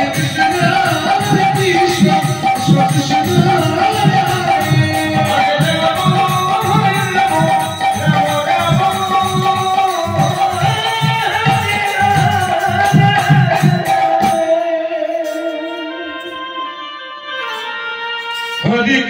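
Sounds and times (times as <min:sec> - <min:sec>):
hand drum beating: 0:00.0 - 0:14.5
jingling cymbals: 0:00.0 - 0:16.5, 0:17.4 - 0:19.0.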